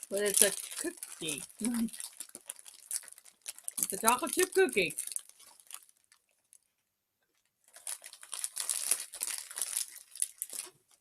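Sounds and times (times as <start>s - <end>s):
plastic wrapper crinkling: 0.0s - 6.7s, 7.3s - 11.0s.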